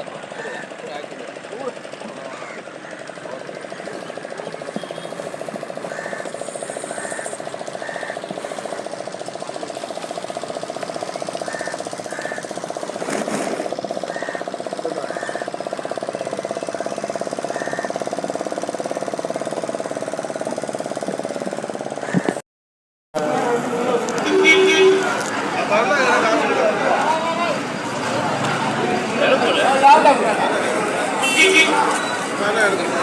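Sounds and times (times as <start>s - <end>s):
boat engine knocking: 0.0s - 22.4s.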